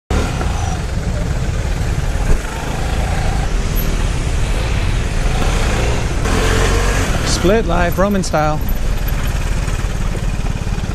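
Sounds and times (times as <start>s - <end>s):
motorcycle engine: 0.1s - 10.9s
surrounding car traffic: 0.1s - 10.9s
wind on microphone: 2.0s - 7.3s.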